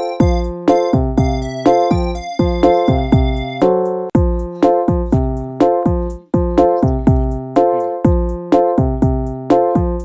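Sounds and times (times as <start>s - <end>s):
held keyboard chords: 0.0s - 10.0s
steady kick-drum beat: 0.0s - 10.0s.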